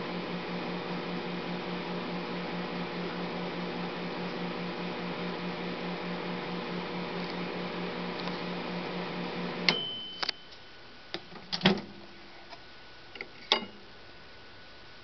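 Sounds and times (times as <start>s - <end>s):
microwave oven humming: 0.0s - 10.5s
short high beep: 9.7s - 10.7s.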